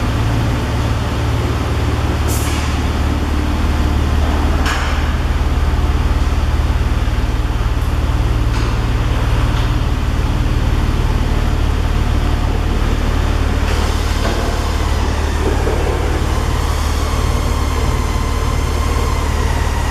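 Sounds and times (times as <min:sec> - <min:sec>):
car engine rumbling: 0:00.0 - 0:19.9.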